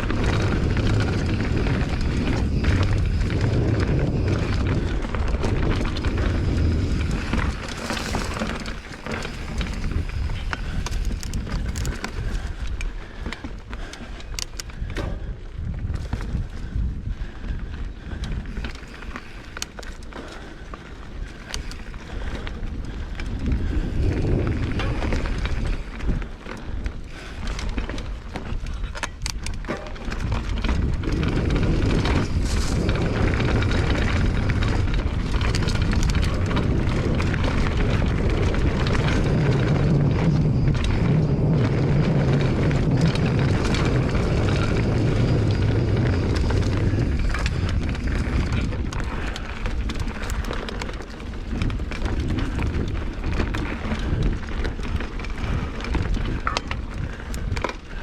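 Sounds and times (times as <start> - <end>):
bike knocks and rattles: 0.0 - 58.0
bike tyres rolling over dirt: 0.0 - 58.0
wind on microphone: 0.0 - 58.0.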